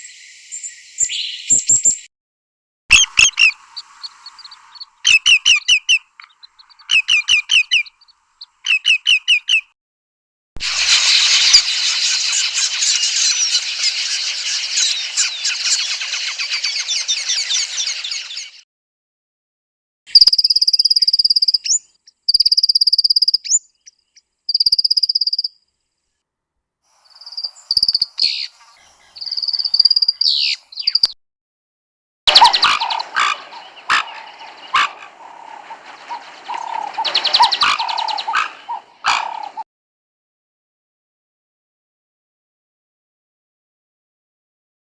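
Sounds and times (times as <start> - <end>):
dense chorus of bird calls: 2.9 - 9.6, 10.7 - 18.6, 27.1 - 31.1, 32.3 - 39.6
bird trills: 2.9 - 9.7, 10.6 - 18.6, 20.1 - 25.6, 27.1 - 31.2, 32.3 - 39.6
short high bird calls: 2.9 - 9.7, 10.6 - 18.6, 27.1 - 31.1, 32.3 - 39.6.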